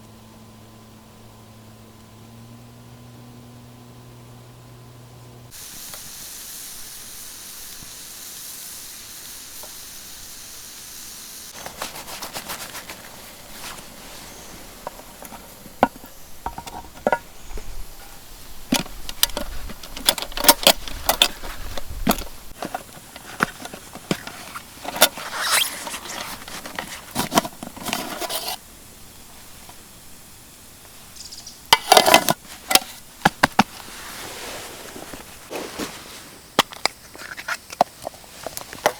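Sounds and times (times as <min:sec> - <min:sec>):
steady hiss: 0:05.5 - 0:38.9
cooking gear clicking and clattering: 0:11.6 - 0:28.6, 0:31.7 - 0:33.8, 0:36.6 - 0:38.9.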